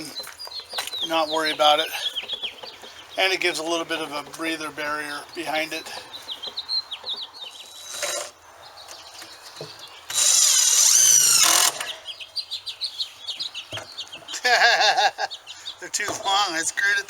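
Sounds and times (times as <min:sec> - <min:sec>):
birds chirping: 0:00.0 - 0:17.0
power drill driving screw into wood: 0:10.1 - 0:12.0.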